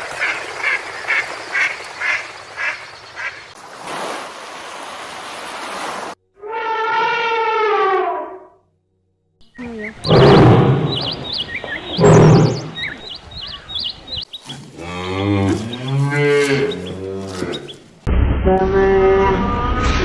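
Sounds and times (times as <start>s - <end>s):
small birds chirping: 9.4s - 17.9s
cow mooing: 14.6s - 17.7s.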